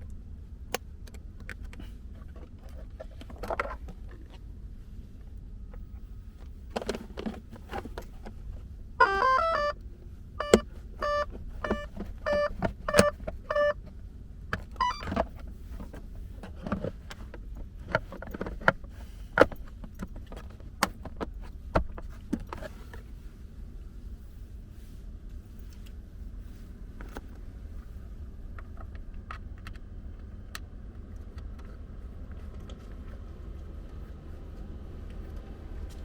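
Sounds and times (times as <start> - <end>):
pitched electronic beeps: 9.0 - 9.8, 10.4 - 13.8.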